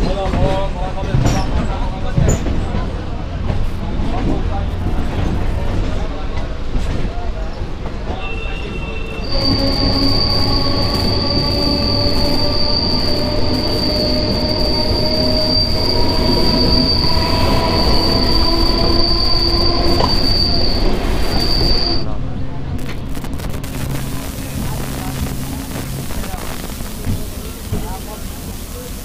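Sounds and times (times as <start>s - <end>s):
train wheels squealing on rails: 0.0s - 23.0s
train rumble: 0.0s - 29.0s.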